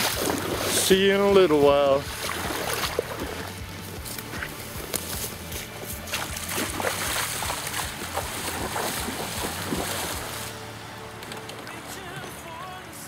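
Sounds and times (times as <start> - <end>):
water rushing and splashing: 0.0 - 3.6, 5.9 - 10.6
small gasoline engine running: 0.0 - 13.0.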